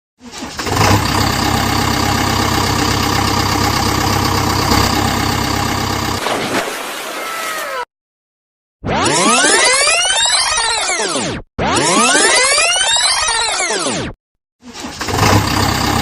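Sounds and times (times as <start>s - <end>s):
engine starting and idling: 0.3s - 6.2s, 14.7s - 16.0s.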